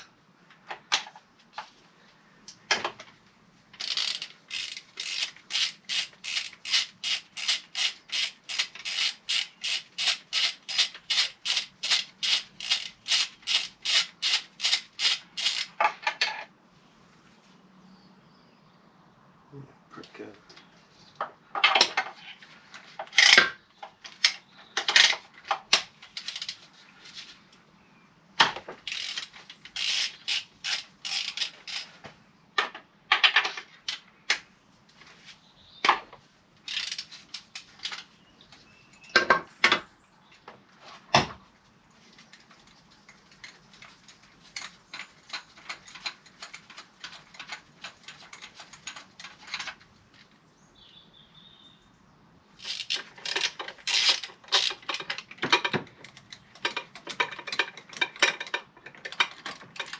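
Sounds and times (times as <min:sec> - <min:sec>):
socket ratchet clicking: 0:03.8 - 0:15.8, 0:28.9 - 0:31.9, 0:36.7 - 0:37.5, 0:52.6 - 0:55.1.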